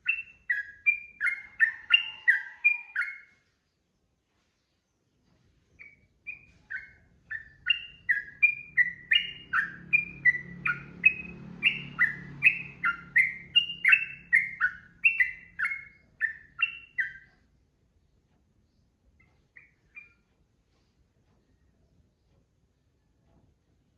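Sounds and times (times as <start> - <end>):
bulbul singing: 0.0 - 3.4, 5.8 - 17.4.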